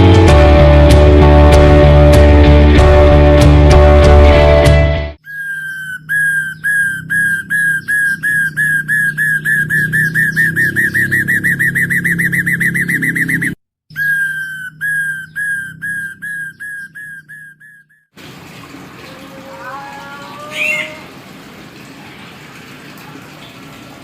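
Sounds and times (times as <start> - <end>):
myna bird whistling: 5.2 - 18.1.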